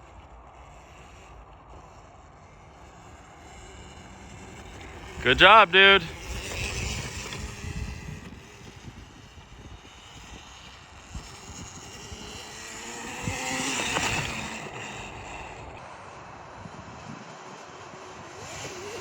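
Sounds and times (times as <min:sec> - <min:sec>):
dirt bike engine revving: 0:11.8 - 0:15.8.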